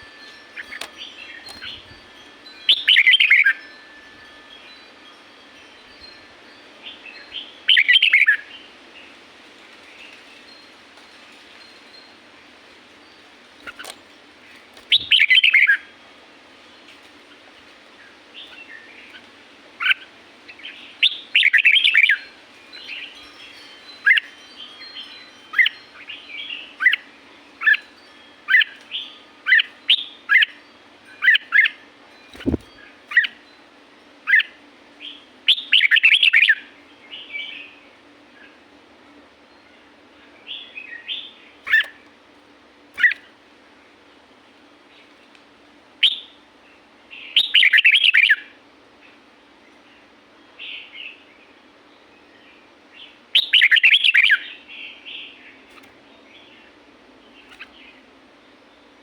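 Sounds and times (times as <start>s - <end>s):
faint steady hum: 0.0s - 59.0s
bird singing warbled phrases: 2.6s - 3.7s, 6.9s - 8.7s, 14.8s - 15.9s, 18.4s - 22.3s, 34.3s - 37.8s, 40.3s - 42.0s, 43.0s - 43.3s, 47.1s - 48.6s, 52.2s - 58.1s.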